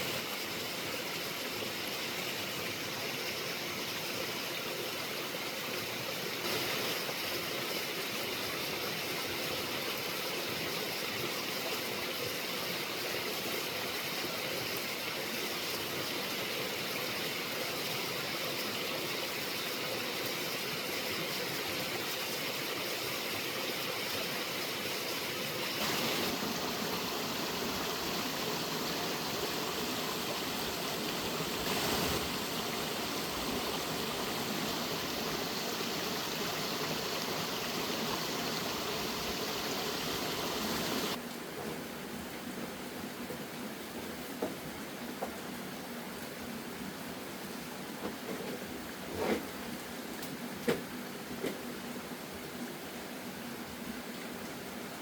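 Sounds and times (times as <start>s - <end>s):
running water rushing: 0.0s - 41.3s.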